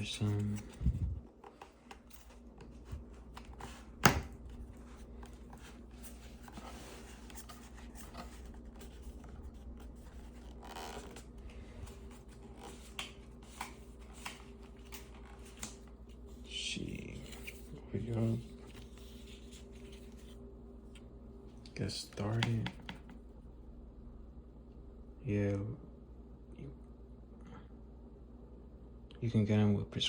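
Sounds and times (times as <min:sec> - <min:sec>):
paper rustling: 0:00.0 - 0:21.0.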